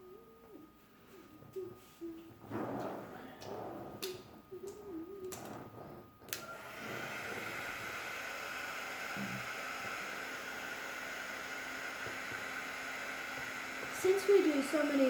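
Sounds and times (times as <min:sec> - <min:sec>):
heat gun blowing with faint whine: 0:03.1 - 0:15.0.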